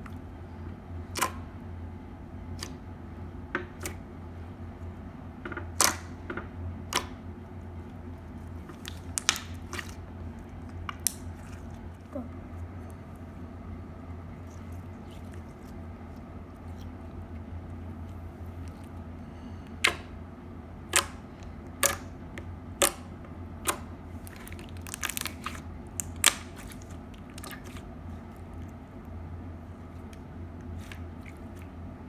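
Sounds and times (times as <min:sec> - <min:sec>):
steady low hum: 0:00.0 - 0:32.0
slime crunchy pops: 0:23.6 - 0:27.8.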